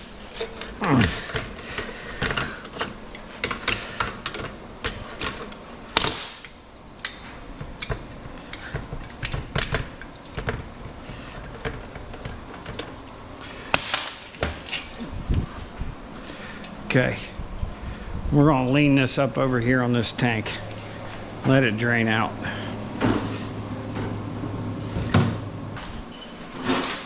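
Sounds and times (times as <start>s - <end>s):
hand tools clicking and tapping metal: 0.0s - 15.1s.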